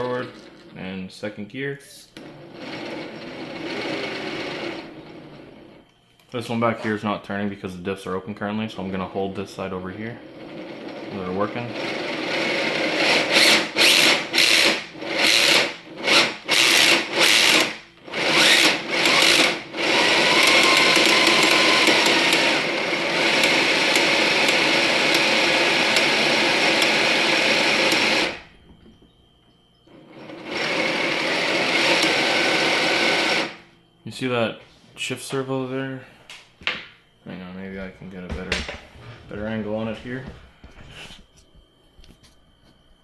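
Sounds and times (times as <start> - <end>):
electric motor and gearbox whirring: 0.0 - 1.4, 2.1 - 7.2, 8.8 - 33.6.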